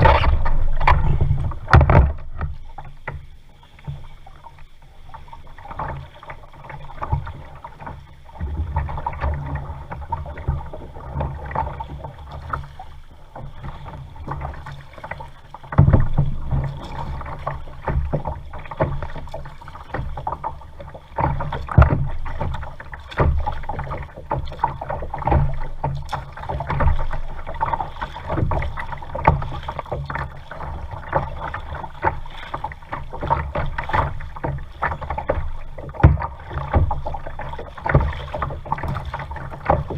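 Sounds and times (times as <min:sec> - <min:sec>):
low rumble: 0:00.0 - 0:03.4
paddle knocking against hull: 0:00.0 - 0:39.9
paddle splashes: 0:00.0 - 0:39.9.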